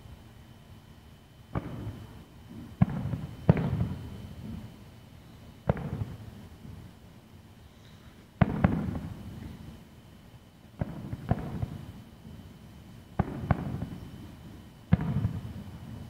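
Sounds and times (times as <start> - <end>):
rolling rumble of fireworks: 0.0 - 16.0
fireworks bangs: 1.5 - 4.8, 5.6 - 6.9, 8.4 - 9.6, 10.8 - 11.9, 13.2 - 14.2, 14.9 - 16.0.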